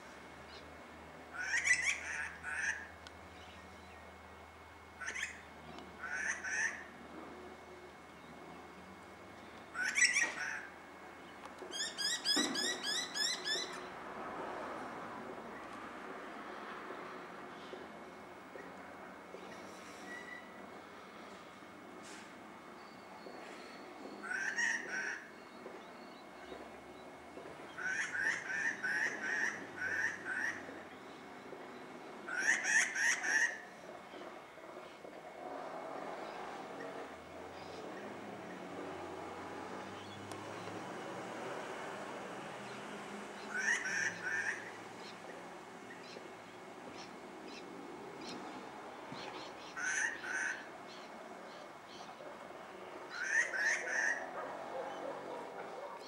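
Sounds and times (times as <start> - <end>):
birds calling: 9.4 - 14.0, 42.6 - 56.0.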